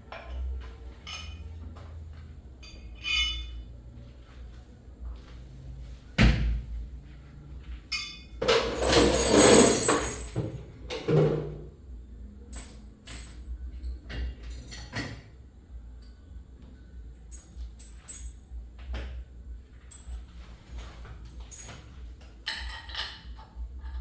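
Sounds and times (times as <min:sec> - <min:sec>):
metal parts clicking and clinking: 0:07.9 - 0:10.5, 0:12.5 - 0:15.2, 0:17.3 - 0:18.4.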